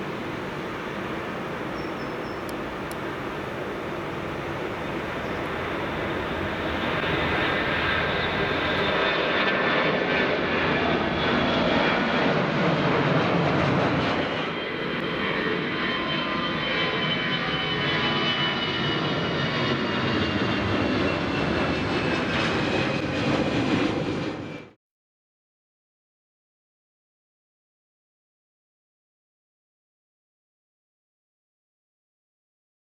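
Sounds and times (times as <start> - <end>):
jet engines with high whine: 0.0 - 24.8.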